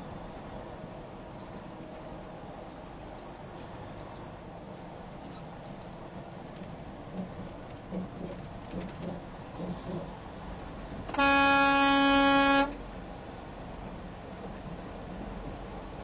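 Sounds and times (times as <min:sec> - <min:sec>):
road noise hum: 0:00.0 - 0:16.0
vehicle horn blast: 0:11.1 - 0:12.8.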